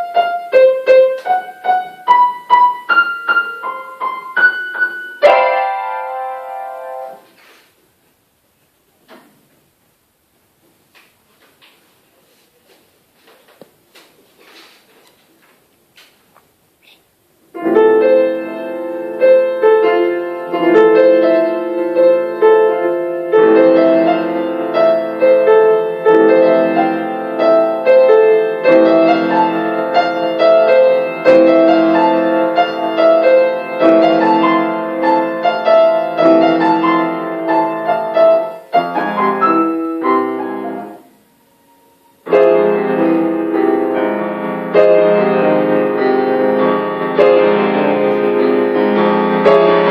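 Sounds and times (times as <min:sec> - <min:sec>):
solo piano piece: 0:00.0 - 0:07.3, 0:17.5 - 0:49.9.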